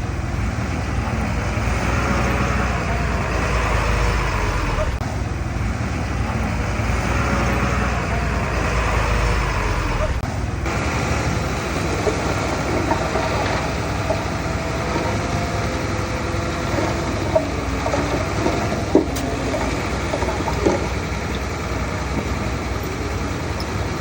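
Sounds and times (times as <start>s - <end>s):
heavy diesel machinery running: 0.0s - 24.0s.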